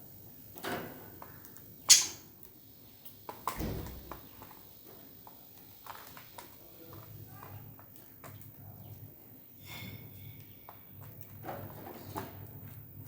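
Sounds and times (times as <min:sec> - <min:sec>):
budgies chirping: 0:01.9 - 0:02.2.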